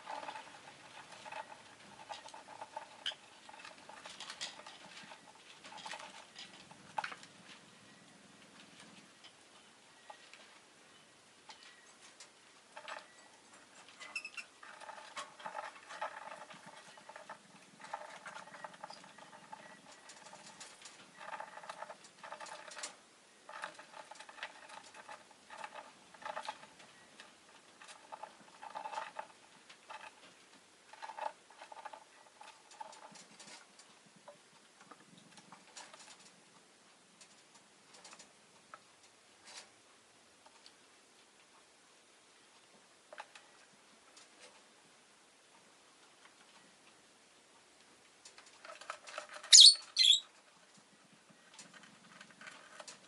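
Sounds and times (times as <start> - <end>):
bird ticks and scratches: 0.0 - 41.6, 42.5 - 44.8, 47.8 - 53.0
soft bird chirps: 49.4 - 50.3.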